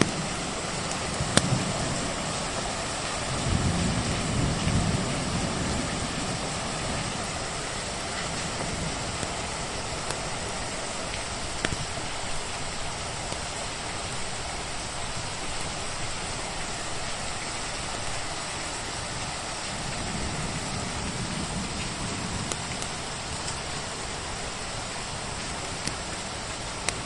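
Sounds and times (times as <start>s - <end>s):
wood fire crackling: 0.0s - 2.7s, 6.3s - 13.5s, 21.9s - 23.7s
steady rain falling: 0.0s - 27.0s.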